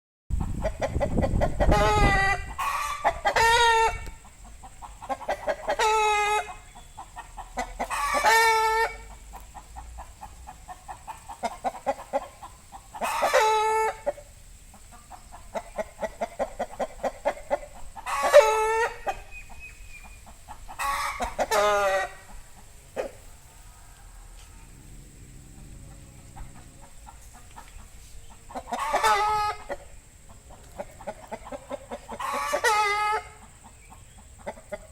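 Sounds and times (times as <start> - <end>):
chicken calling loudly: 0.3 - 14.3, 14.9 - 34.9
soft clucking: 0.3 - 23.5, 24.2 - 34.9.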